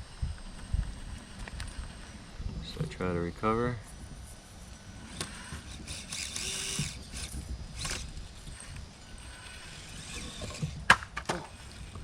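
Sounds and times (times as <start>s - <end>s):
electric motor whining: 4.0s - 12.0s.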